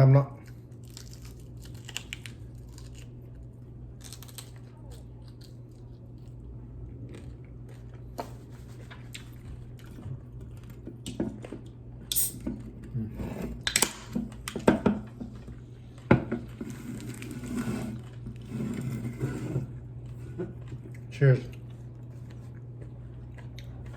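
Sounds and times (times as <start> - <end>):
faint steady hum: 0.0 - 23.9
wet chewing: 0.4 - 12.9, 19.9 - 23.9
crunching while eating: 0.4 - 23.9.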